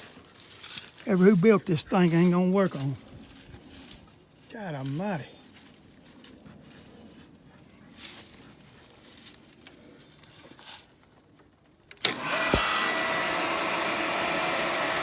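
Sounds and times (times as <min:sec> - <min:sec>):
pump motor whining: 0:11.9 - 0:15.0.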